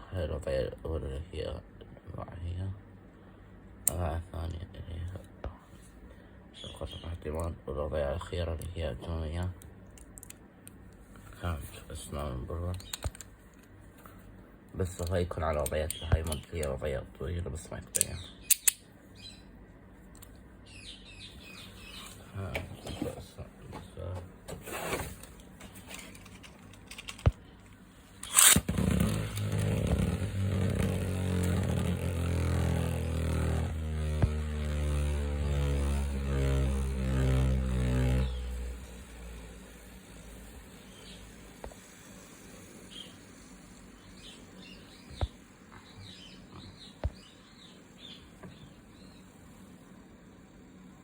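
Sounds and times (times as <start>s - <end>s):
birds chirping: 6.2s - 7.5s, 11.4s - 13.2s, 14.8s - 16.9s, 18.0s - 19.6s, 20.6s - 24.5s, 38.0s - 41.6s, 42.5s - 49.4s
sharp click: 17.9s - 18.9s
spinning top launcher rip: 28.2s - 40.8s
spinning top whirring: 28.2s - 43.9s.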